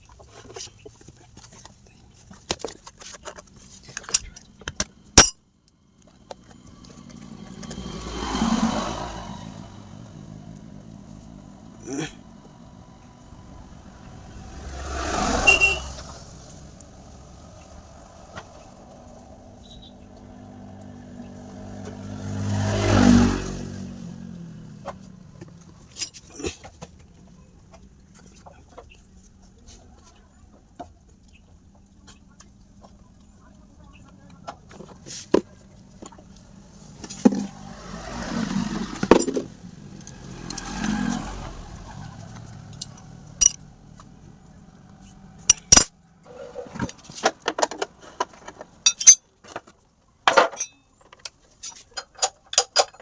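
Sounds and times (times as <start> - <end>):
small engine running and revving: 6.4 - 26.0, 36.3 - 45.3
metallic clinks of tools: 42.8 - 43.6, 48.8 - 49.3, 50.4 - 53.0.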